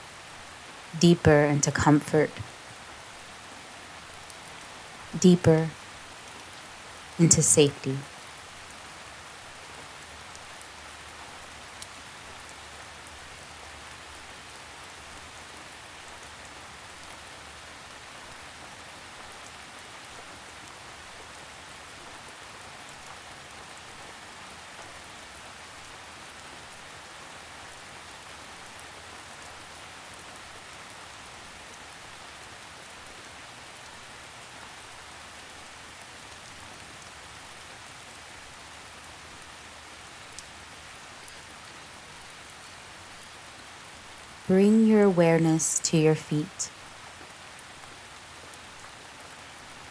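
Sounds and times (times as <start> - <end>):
steady rainfall: 0.0 - 1.6, 2.2 - 49.9
faint drip ticks: 11.7 - 12.6, 40.3 - 40.5.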